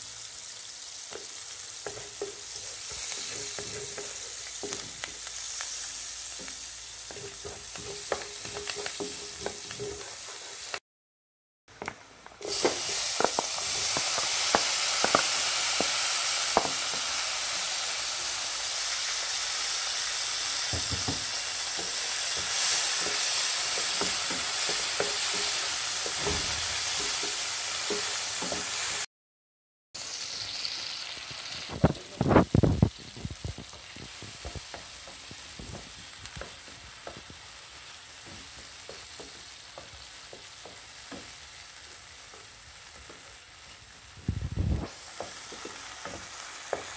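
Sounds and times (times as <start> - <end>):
food sizzling in hot oil: 0.0 - 10.8, 12.0 - 29.1, 30.0 - 46.9
wooden spatula scraping a pan: 1.2 - 5.1, 5.7 - 10.8.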